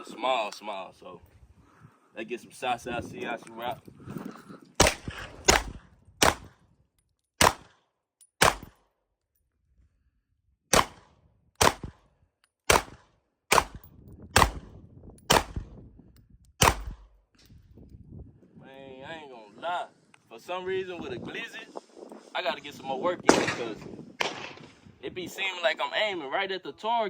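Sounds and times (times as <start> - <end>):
pistol shots with echo: 4.8 - 6.6, 7.4 - 7.8, 8.4 - 8.8, 10.7 - 12.0, 12.7 - 14.7, 15.3 - 15.7, 16.6 - 17.1, 23.3 - 24.8.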